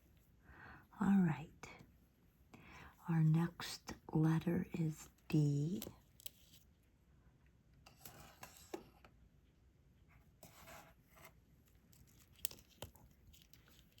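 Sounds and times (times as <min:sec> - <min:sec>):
faint scraping and rustling: 0:07.8 - 0:09.1, 0:10.1 - 0:14.0.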